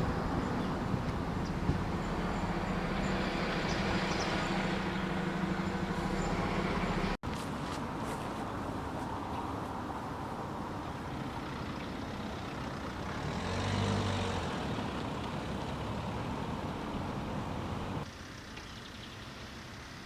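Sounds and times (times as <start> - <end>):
heavy vehicle engine passing: 0.0 - 7.2, 8.6 - 18.4
road traffic rumble: 0.0 - 20.0.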